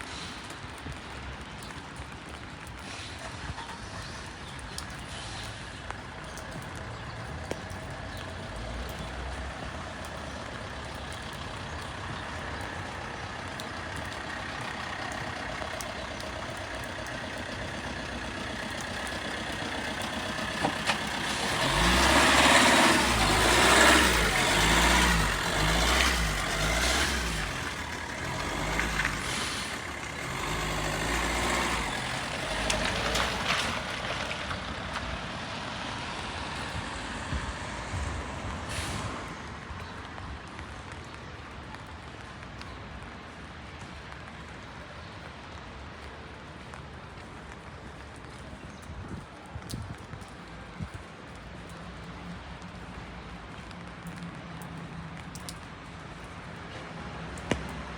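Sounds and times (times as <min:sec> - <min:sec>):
street noise in the rain: 0:00.0 - 0:57.9
tyres hissing on wet road: 0:00.0 - 0:57.9
heavy vehicle engine passing: 0:07.6 - 0:39.7.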